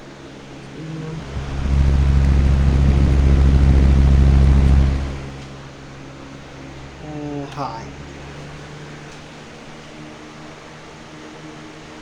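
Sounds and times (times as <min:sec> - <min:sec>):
fan air blowing on microphone: 0:00.0 - 0:05.9.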